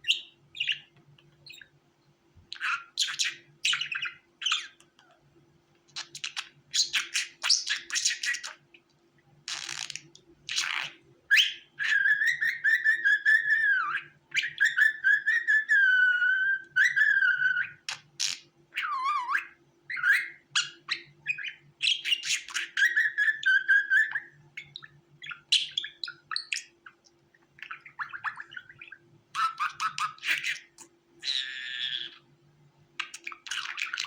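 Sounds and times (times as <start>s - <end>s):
budgerigar chirping and chattering: 0.0s - 0.9s, 2.5s - 4.8s, 6.0s - 8.6s, 9.5s - 27.0s, 27.6s - 32.3s, 33.0s - 34.0s
budgerigar wavering whistle: 11.3s - 17.8s, 18.8s - 26.7s.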